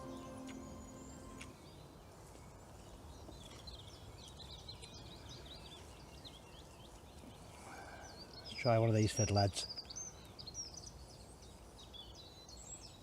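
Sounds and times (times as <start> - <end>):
background music: 0.0 - 1.6
faint outdoor background noise: 0.0 - 13.0
small birds chirping: 0.0 - 13.0.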